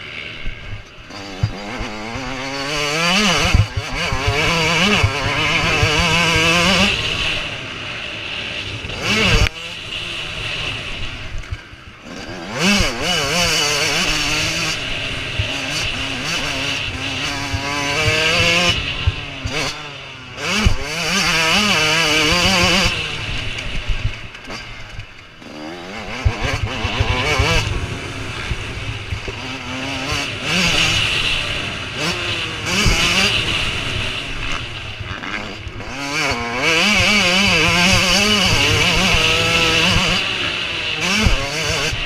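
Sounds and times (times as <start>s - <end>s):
motocross engines revving: 0.0s - 42.0s.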